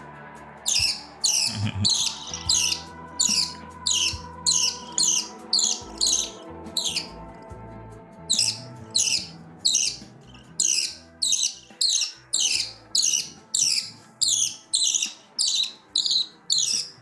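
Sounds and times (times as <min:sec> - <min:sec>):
background music: 0:00.0 - 0:17.0
budgie chicks squawking: 0:00.7 - 0:07.2, 0:08.3 - 0:17.0.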